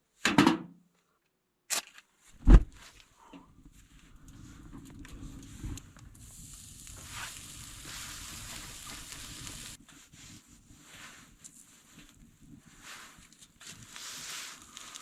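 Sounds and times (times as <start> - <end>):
fire crackling: 3.6 - 15.0
sizzling hiss over campfire: 3.8 - 15.0.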